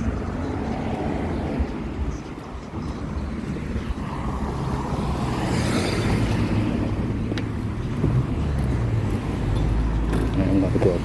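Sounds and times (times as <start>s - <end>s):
low traffic rumble: 0.0s - 11.0s
vehicle passing close by: 3.1s - 10.2s.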